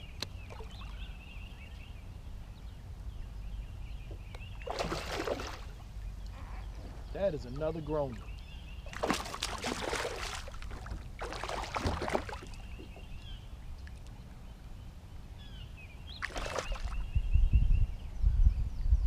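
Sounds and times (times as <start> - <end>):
bird chirping: 0.0 - 10.4, 12.0 - 19.0
water splashing at a kayak: 4.1 - 6.2, 7.6 - 14.1, 16.2 - 17.1.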